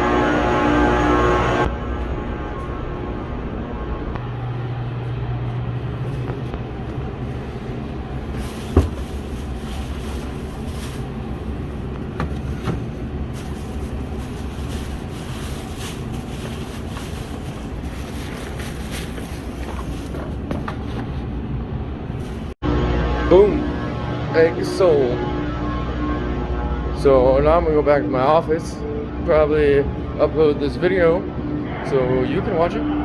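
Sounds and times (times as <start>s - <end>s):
truck cab hum and road noise: 0.0s - 22.9s.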